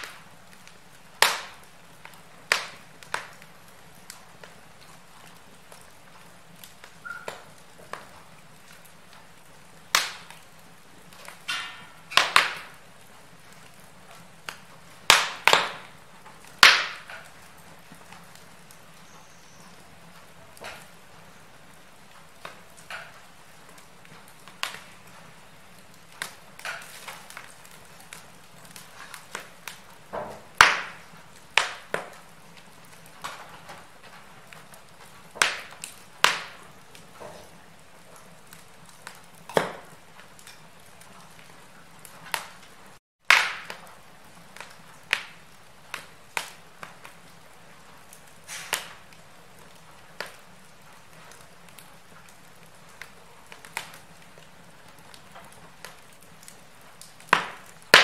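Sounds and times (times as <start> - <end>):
soft steady hiss: 0.0 - 43.0
wood fire crackling: 0.0 - 58.0.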